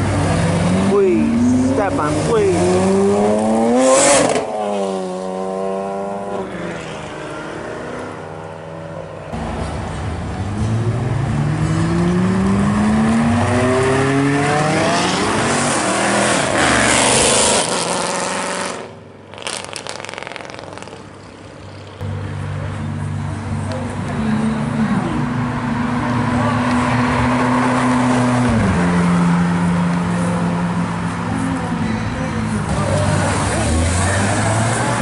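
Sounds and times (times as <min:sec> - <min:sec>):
car engine revving up: 0:00.0 - 0:08.8, 0:09.4 - 0:21.0, 0:32.5 - 0:35.0
car engine passing at high revs: 0:00.0 - 0:21.0, 0:23.1 - 0:31.8, 0:32.5 - 0:35.0
quieter traffic: 0:00.0 - 0:35.0.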